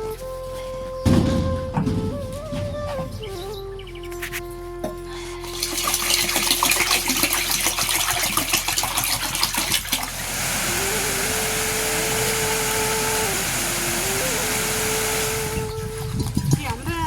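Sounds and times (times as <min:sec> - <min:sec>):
soft background music: 0:00.0 - 0:09.3
rain rushing: 0:05.5 - 0:16.1.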